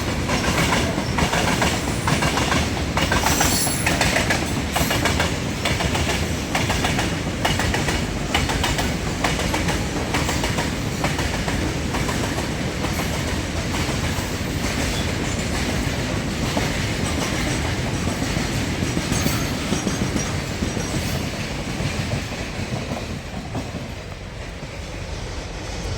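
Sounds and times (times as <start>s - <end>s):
train rumble: 0.0s - 25.9s
train wheels clattering: 0.0s - 25.9s.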